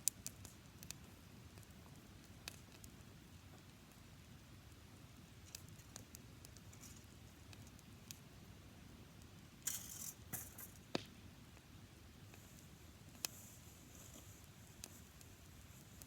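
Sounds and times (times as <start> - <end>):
campfire crackling: 0.0 - 16.0
rustling hiss: 9.6 - 11.0, 12.1 - 16.0.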